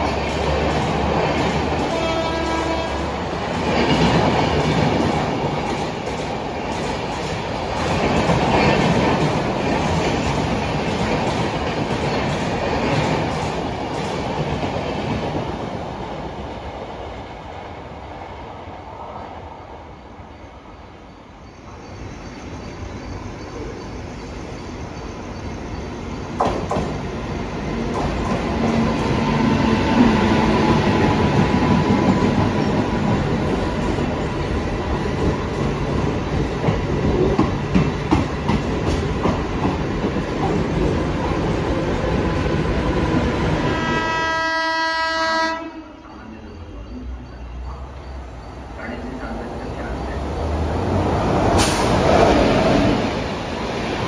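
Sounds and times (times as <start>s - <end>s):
train rumbling and clattering: 0.0s - 54.0s
train horn: 1.8s - 3.2s, 43.6s - 46.1s.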